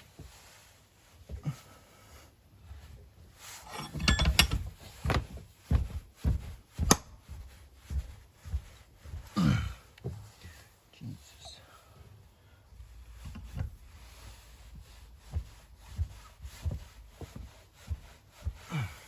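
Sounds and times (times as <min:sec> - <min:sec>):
metal knocks and clanks: 0:03.6 - 0:05.4.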